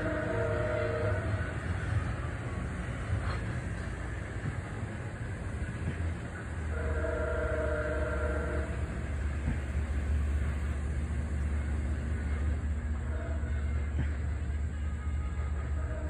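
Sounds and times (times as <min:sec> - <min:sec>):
train horn chord: 0:00.0 - 0:02.5, 0:06.7 - 0:09.1, 0:12.3 - 0:16.0
diesel train rumbling: 0:00.0 - 0:16.0.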